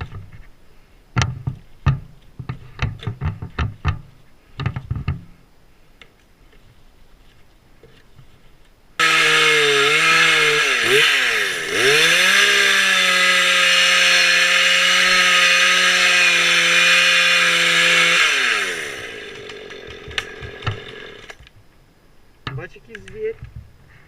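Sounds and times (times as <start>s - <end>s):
chainsaw running at high revs: 9.0s - 21.4s.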